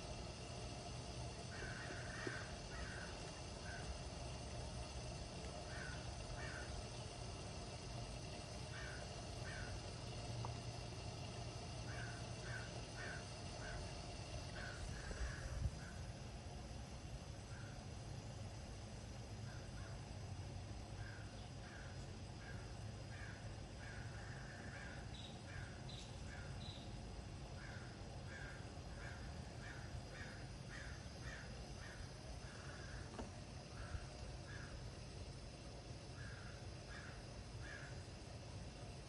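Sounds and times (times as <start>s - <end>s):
steady low rumble: 0.0s - 19.8s
bird calling: 1.4s - 4.9s, 5.5s - 7.2s, 8.4s - 10.5s, 11.8s - 16.0s.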